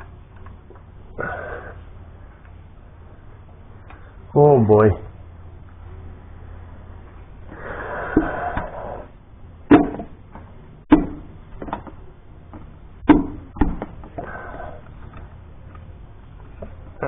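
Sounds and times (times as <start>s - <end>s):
sharp metal knocks and clanks: 9.7s - 10.2s, 10.9s - 11.9s, 13.0s - 14.0s.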